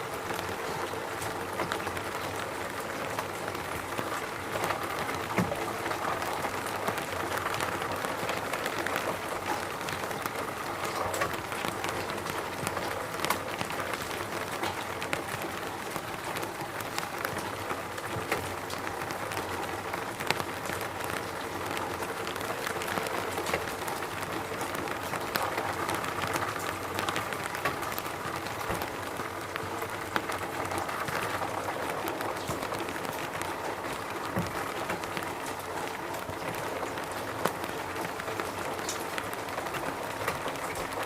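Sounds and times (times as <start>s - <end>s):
steady rain falling: 0.0s - 41.0s.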